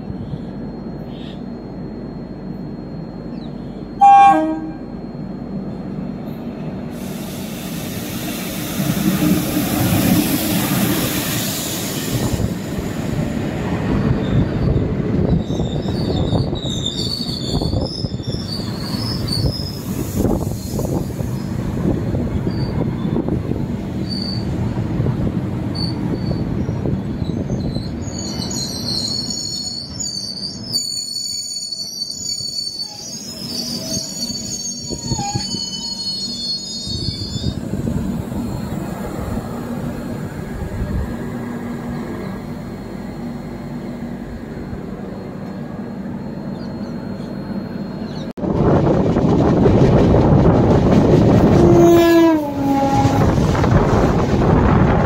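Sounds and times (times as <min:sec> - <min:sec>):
train horn blast: 0:04.0 - 0:04.9, 0:51.4 - 0:53.5
train wheels rumbling on rails: 0:06.2 - 0:30.8, 0:32.8 - 0:55.0
high-pitched wheel squeal: 0:14.0 - 0:21.5, 0:24.0 - 0:24.5, 0:25.7 - 0:37.7.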